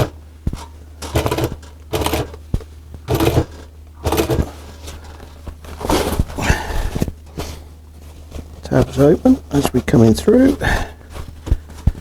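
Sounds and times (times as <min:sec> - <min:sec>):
steady low hum: 0:00.0 - 0:12.0
sewing machine stitching: 0:01.0 - 0:02.4, 0:03.1 - 0:04.7.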